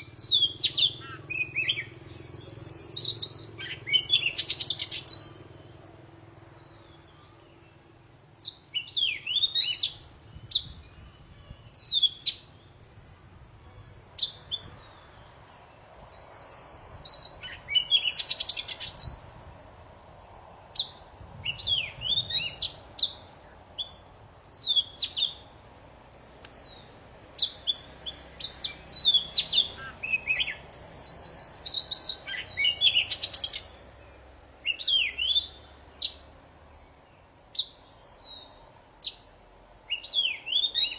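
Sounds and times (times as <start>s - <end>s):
magpie-robin singing: 0.0s - 40.9s.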